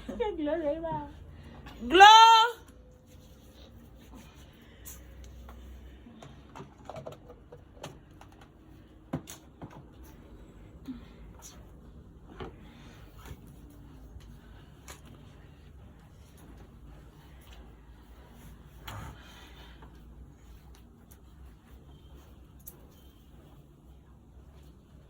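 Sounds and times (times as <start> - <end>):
low steady hum: 0.0 - 25.0
faint clicks and knocks: 5.2 - 10.2.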